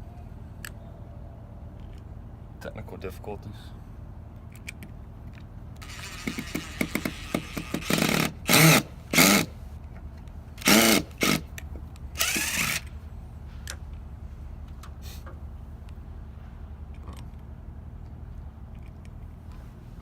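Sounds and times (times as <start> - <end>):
power drill spinning: 5.8 - 9.5, 10.6 - 11.4, 12.2 - 12.9.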